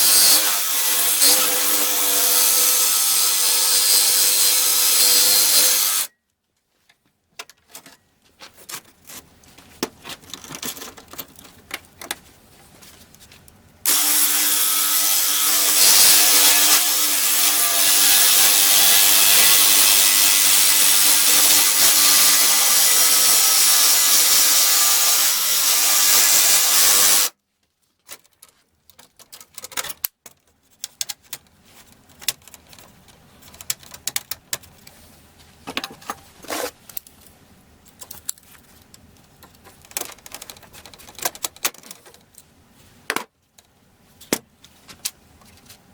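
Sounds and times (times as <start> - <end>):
power tool running: 0.0 - 6.1, 13.9 - 27.3.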